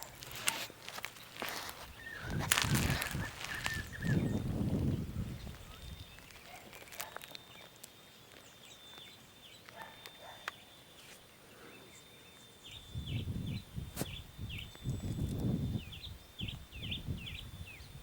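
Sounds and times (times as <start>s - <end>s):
small birds chirping: 0.0s - 18.0s
low rumbling wind gusts: 1.9s - 6.2s, 12.8s - 18.0s.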